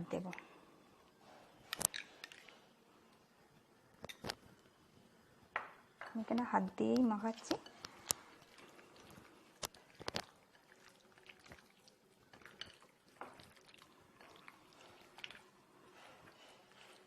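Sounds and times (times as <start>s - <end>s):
wet squelching of hands mixing: 7.2s - 17.0s.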